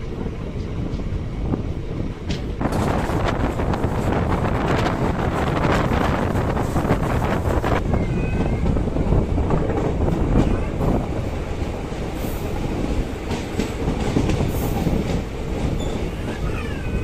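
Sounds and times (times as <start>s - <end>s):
wind buffeting microphone: 0.0s - 17.0s
faint high squeal: 15.8s - 17.0s.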